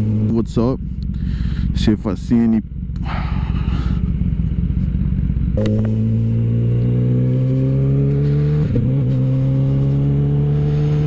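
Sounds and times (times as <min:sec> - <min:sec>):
motorcycle engine revving: 0:00.0 - 0:11.0
quick gear change: 0:05.6 - 0:11.0.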